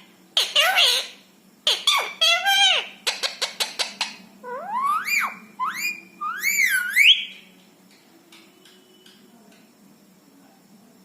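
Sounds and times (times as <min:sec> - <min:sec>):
parrot whistled calls: 0:04.4 - 0:07.4.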